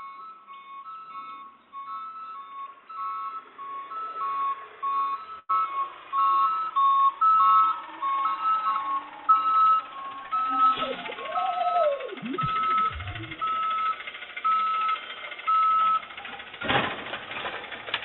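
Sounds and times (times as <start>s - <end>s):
electronic beeping tune: 12.0s - 16.0s.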